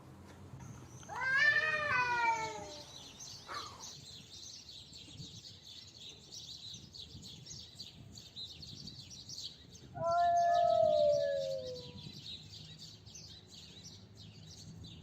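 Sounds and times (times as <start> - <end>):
cat fighting yowl: 1.1 - 2.8, 10.0 - 11.9.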